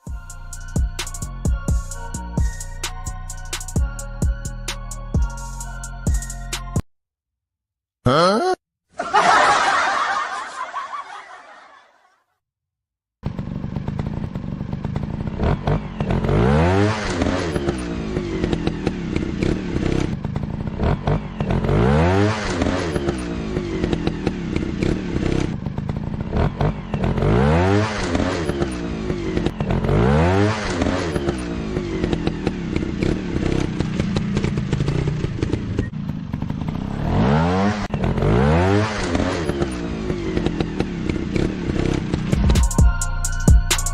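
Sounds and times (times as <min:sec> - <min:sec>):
motorcycle engine revving: 0:13.2 - 0:43.0.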